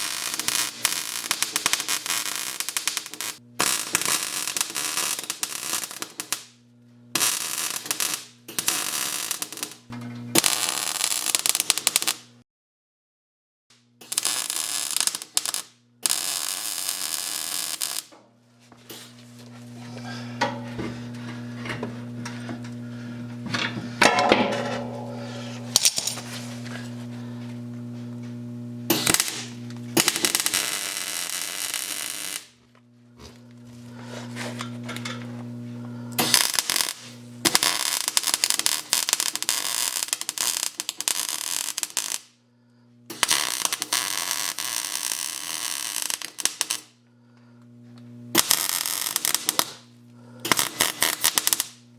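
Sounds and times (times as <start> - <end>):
steady electrical hum: 0.0 - 12.4, 13.9 - 51.9
welding crackling and sputtering: 0.0 - 12.4, 14.0 - 18.2, 20.6 - 42.4, 43.0 - 47.0, 47.7 - 51.9.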